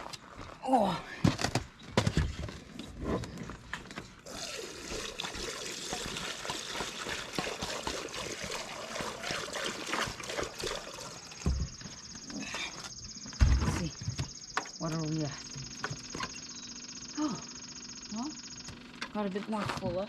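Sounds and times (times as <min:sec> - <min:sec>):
fuel pouring into a tank: 0:04.2 - 0:12.3.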